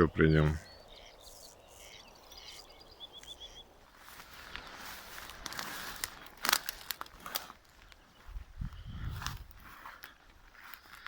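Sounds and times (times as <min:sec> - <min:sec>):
bird chirping: 0:00.0 - 0:04.1
footsteps crunching outdoors: 0:00.0 - 0:11.0.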